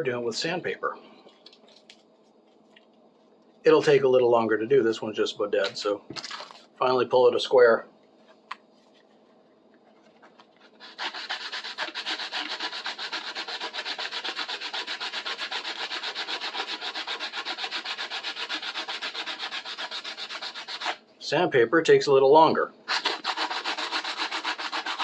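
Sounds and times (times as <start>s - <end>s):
sandpaper rubbing on wood: 10.8s - 21.0s, 22.9s - 25.0s.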